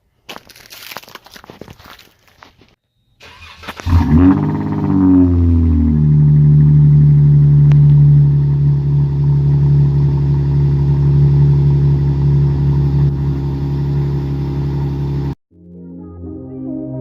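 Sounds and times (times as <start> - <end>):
car engine idling: 3.2 - 15.4.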